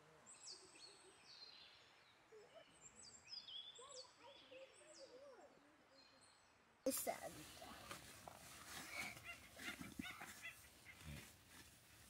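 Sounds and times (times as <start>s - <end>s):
faint songbird chirps: 0.0s - 7.9s.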